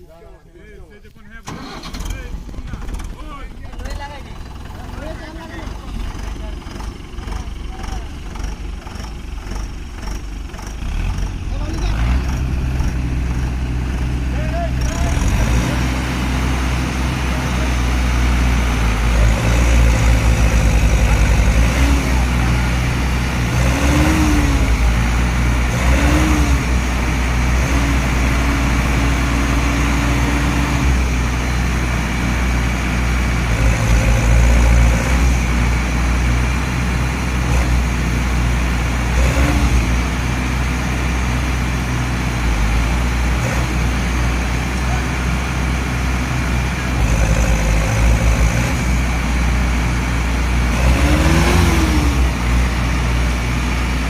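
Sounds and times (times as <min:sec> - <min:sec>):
tractor diesel engines revving: 0:00.0 - 0:54.0.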